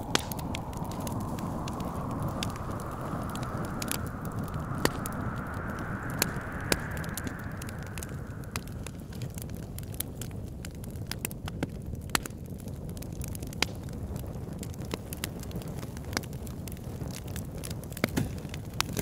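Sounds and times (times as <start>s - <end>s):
hissing whistling wind: 0.0s - 10.3s
low wind rumble: 0.0s - 10.5s
wood fire crackling and popping: 0.0s - 19.0s.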